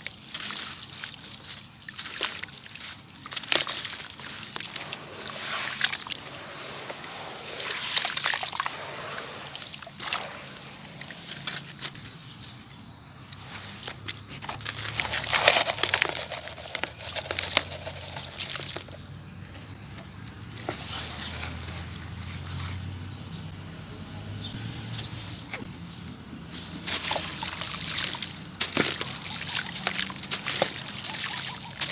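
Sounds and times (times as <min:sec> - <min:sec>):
material crumbling in sloshing water: 0:00.0 - 0:12.0, 0:13.8 - 0:19.0, 0:26.5 - 0:31.9.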